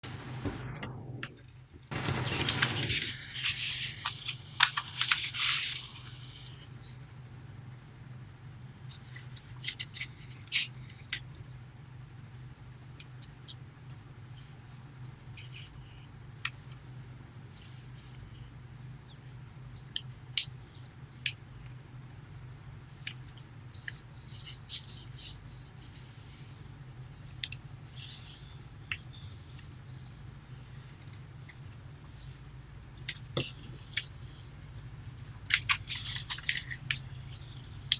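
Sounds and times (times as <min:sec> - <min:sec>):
steady low hum: 0:00.0 - 0:37.9
paper rustling and crinkling: 0:01.9 - 0:06.1, 0:30.8 - 0:37.9.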